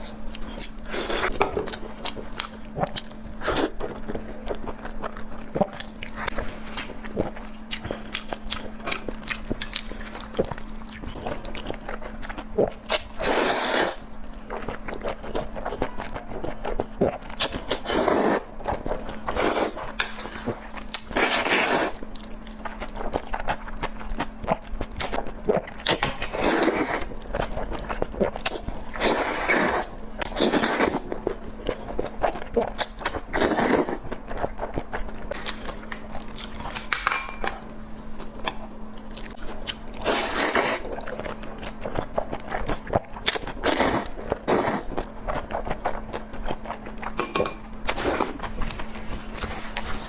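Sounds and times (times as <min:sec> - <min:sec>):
biting and chewing: 0:00.0 - 0:50.0
steady low hum: 0:00.0 - 0:50.0.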